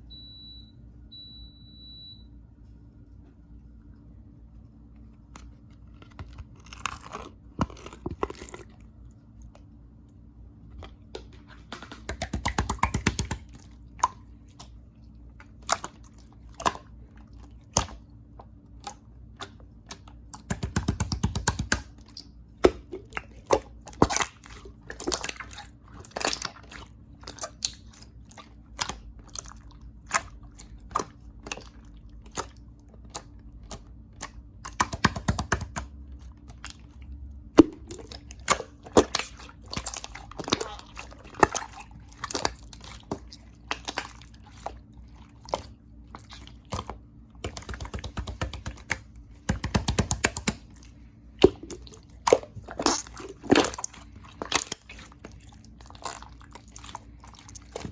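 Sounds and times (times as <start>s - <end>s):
slime clicking and popping: 12.0s - 14.7s, 18.8s - 22.9s, 33.1s - 36.0s, 46.6s - 50.6s.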